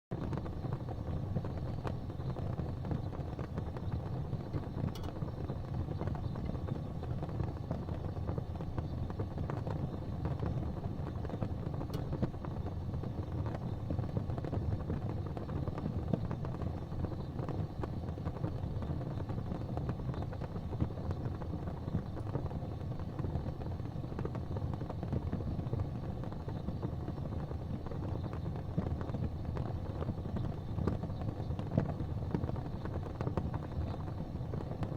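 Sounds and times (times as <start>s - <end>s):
gas fireplace flames hissing: 0.1s - 34.9s.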